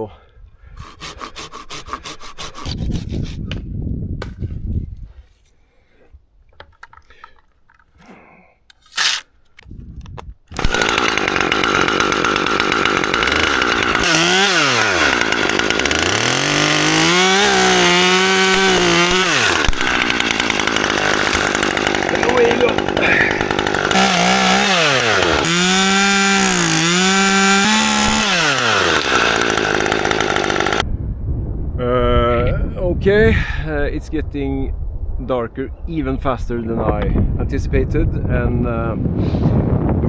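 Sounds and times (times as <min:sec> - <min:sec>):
chainsaw revving and cutting: 0:00.8 - 0:03.3, 0:08.9 - 0:09.2, 0:10.5 - 0:30.8
handsaw strokes: 0:00.8 - 0:03.6, 0:08.8 - 0:09.3, 0:10.6 - 0:30.8.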